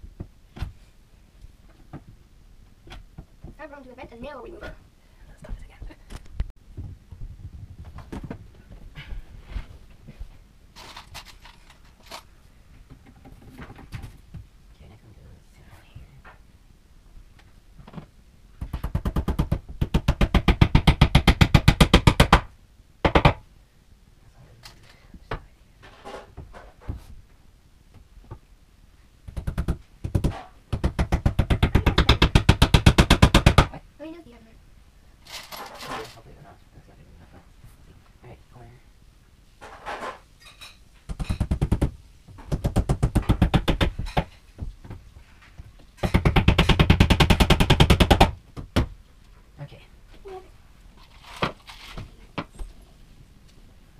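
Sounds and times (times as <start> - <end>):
nails being hammered: 18.6 - 23.4, 29.3 - 33.7, 41.1 - 44.4, 46.0 - 49.0.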